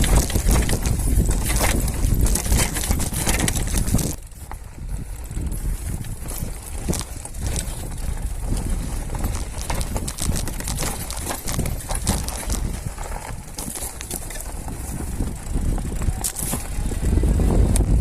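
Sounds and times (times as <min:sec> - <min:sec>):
bike rattling: 0:00.0 - 0:18.0
tyres crunching on dirt: 0:00.0 - 0:18.0.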